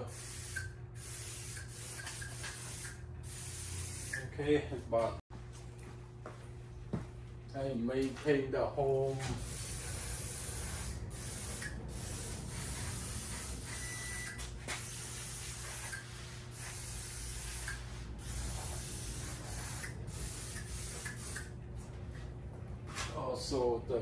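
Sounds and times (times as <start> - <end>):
aerosol spray hissing: 9.4 - 13.7, 14.8 - 21.5.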